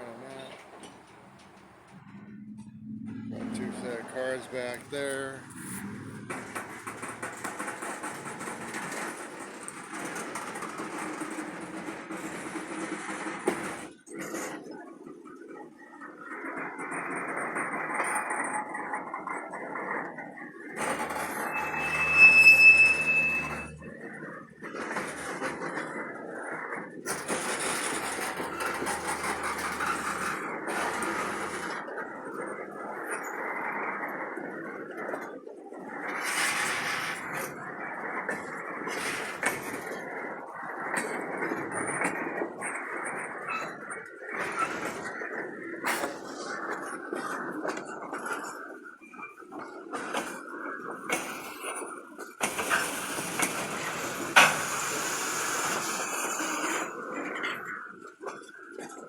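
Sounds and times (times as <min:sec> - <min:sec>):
diesel locomotive running: 0:00.0 - 0:14.4, 0:18.6 - 0:35.1, 0:35.7 - 0:48.0, 0:52.4 - 0:57.8
train wheels clattering on rails: 0:00.0 - 0:59.0
steady drone: 0:01.7 - 0:08.7, 0:20.8 - 0:25.6.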